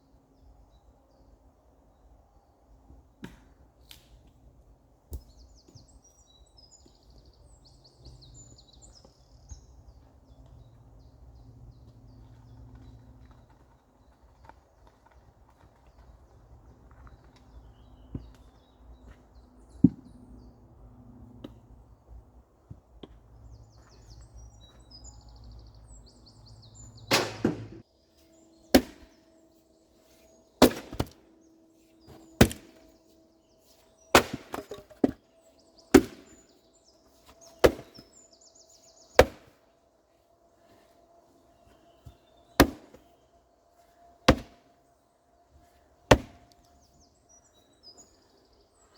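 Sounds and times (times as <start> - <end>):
firewood being chopped: 27.1 - 27.8, 28.7 - 29.2, 30.6 - 31.2, 32.1 - 32.9, 34.1 - 35.2, 35.9 - 36.4, 37.2 - 38.1, 39.1 - 39.6, 42.0 - 43.1, 44.3 - 44.6, 46.1 - 46.6.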